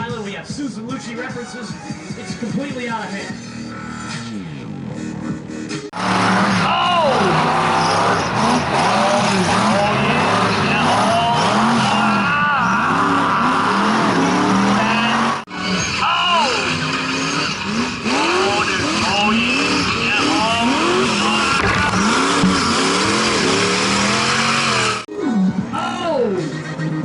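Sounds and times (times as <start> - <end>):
truck engine revving hard: 3.7 - 25.1.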